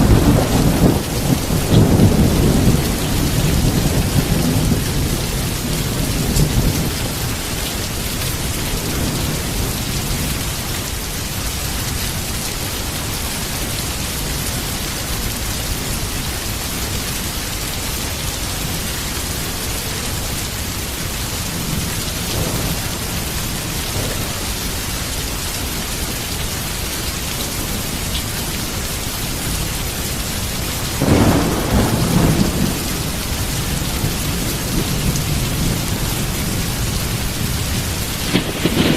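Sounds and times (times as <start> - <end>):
thunder rolling: 0.0 - 7.4, 21.5 - 25.2, 31.0 - 38.9
heavy rain: 0.0 - 38.9.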